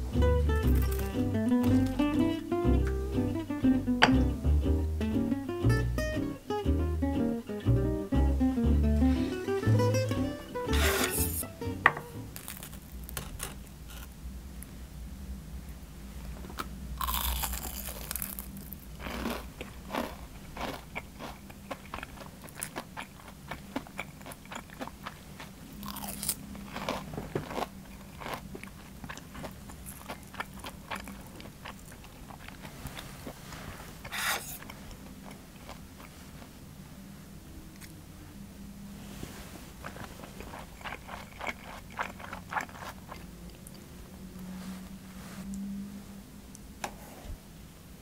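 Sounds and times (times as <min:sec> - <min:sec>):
crunching of fried cutlet being chewed: 0:12.4 - 0:14.1, 0:17.0 - 0:33.4, 0:39.8 - 0:43.8.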